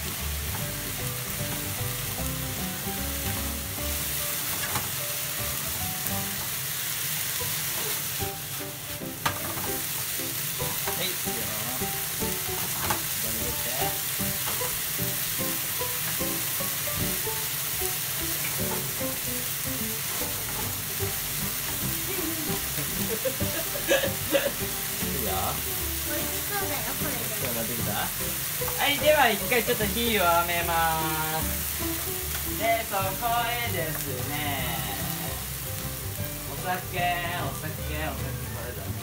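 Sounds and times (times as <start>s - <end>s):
food sizzling in a frying pan: 0.0s - 39.0s.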